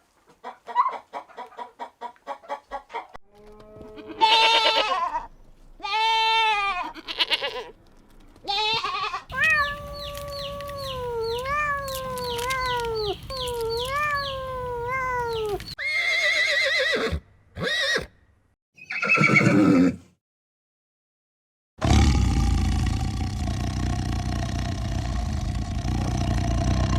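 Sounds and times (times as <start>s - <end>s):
bleat-like animal cries: 3.4s - 7.7s, 8.5s - 17.0s.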